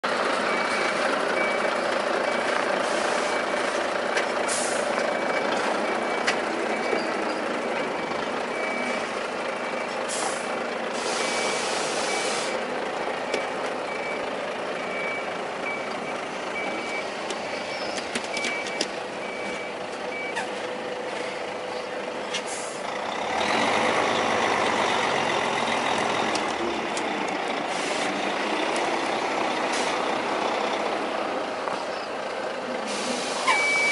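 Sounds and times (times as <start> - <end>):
heavy truck engine running: 0.0 - 33.9
air brake hisses: 4.5 - 4.8, 10.1 - 12.6, 22.3 - 22.8, 32.8 - 33.9
reversing alarm beeping: 5.1 - 10.0, 11.2 - 12.6, 13.3 - 20.5, 33.3 - 33.9.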